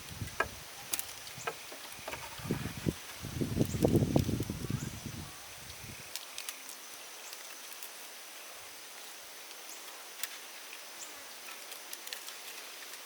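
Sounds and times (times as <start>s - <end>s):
rustles: 0.0s - 13.0s
crisp clicks: 6.1s - 7.9s, 11.5s - 13.0s.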